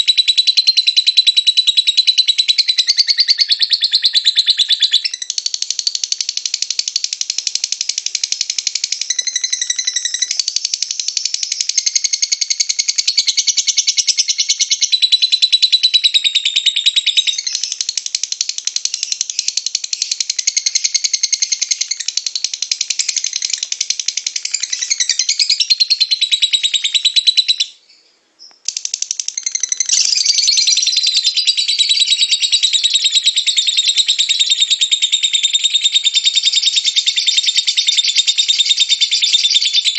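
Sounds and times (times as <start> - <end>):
lovebird chattering trill: 0.0 - 27.8, 28.6 - 39.9.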